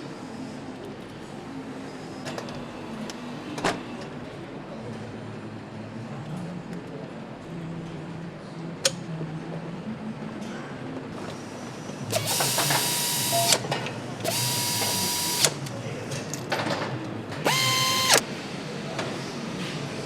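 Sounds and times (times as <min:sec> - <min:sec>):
assembly line hum: 0:12.1 - 0:15.7, 0:17.5 - 0:18.2
power tool whining: 0:12.1 - 0:15.7, 0:17.5 - 0:18.2.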